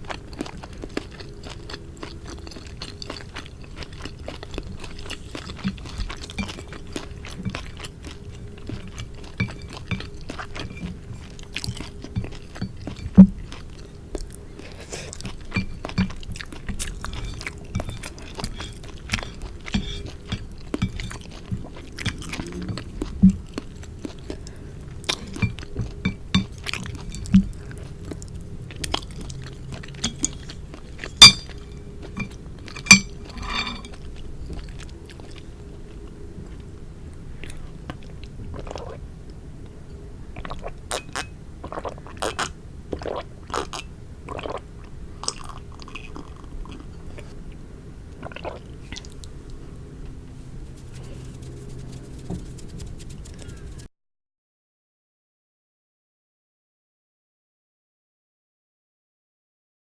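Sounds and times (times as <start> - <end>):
chewing and mouth sounds: 0.0 - 53.9.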